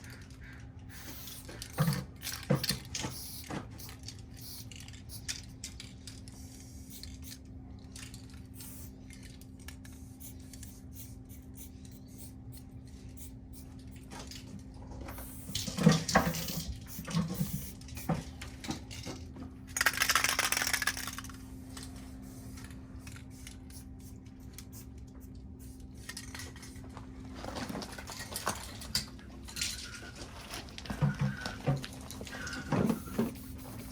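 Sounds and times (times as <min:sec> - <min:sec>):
steady low hum: 0:00.0 - 0:33.9
spray paint can hissing: 0:00.9 - 0:05.3, 0:06.4 - 0:07.4, 0:08.5 - 0:09.0, 0:09.8 - 0:13.7, 0:15.2 - 0:18.1, 0:23.3 - 0:24.9, 0:33.0 - 0:33.9.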